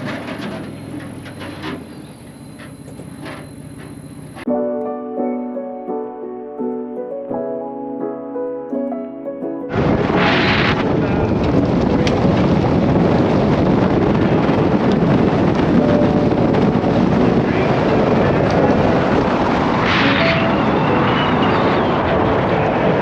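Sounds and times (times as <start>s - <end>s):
road noise: 0.0s - 4.5s, 9.7s - 23.0s
music: 4.5s - 11.3s
wind buffeting microphone: 9.7s - 23.0s.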